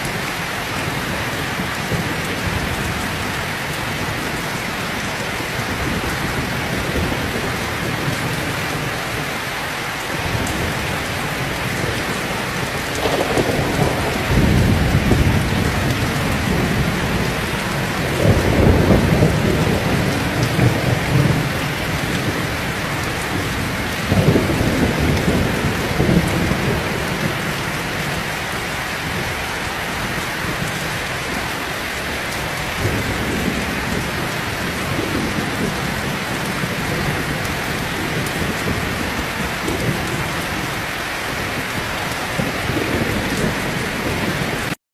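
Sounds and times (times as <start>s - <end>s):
heavy rain falling: 0.0s - 44.8s
rolling thunder: 10.2s - 29.4s, 30.0s - 44.8s.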